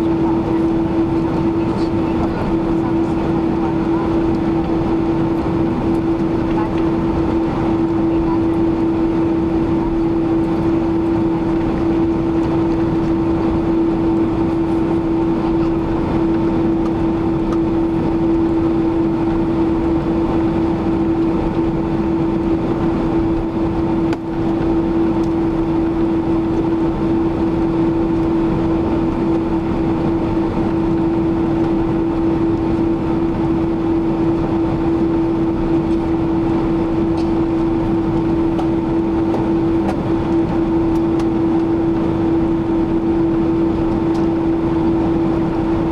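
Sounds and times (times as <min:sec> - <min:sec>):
airplane cabin engine noise: 0:00.0 - 0:45.9.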